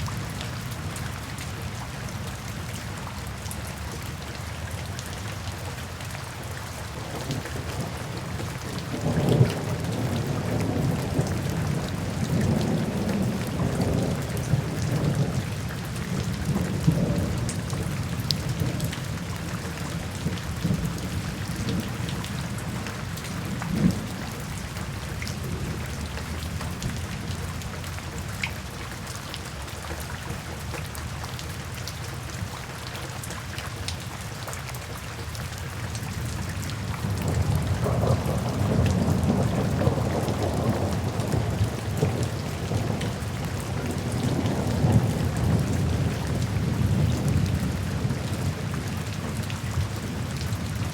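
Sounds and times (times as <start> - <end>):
steady rain: 0.0 - 50.9
rolling thunder: 37.0 - 49.4.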